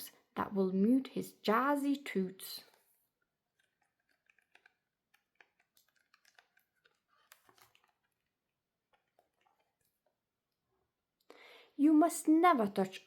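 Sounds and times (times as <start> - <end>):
book pages turning: 2.6 - 9.9.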